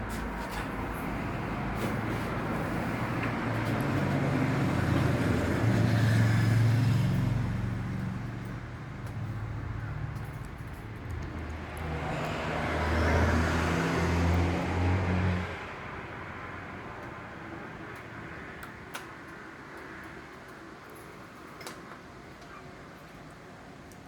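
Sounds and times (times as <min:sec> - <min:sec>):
vehicle engine hum: 0:00.0 - 0:18.8
road noise: 0:00.0 - 0:24.0.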